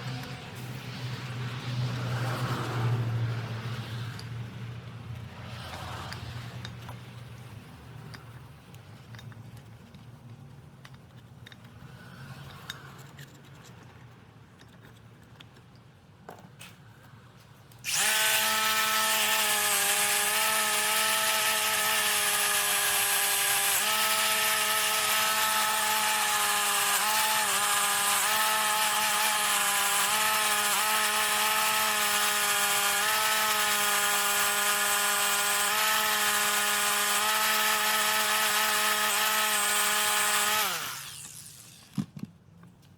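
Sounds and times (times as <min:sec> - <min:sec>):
motor-driven machine whining: 0:17.8 - 0:42.0.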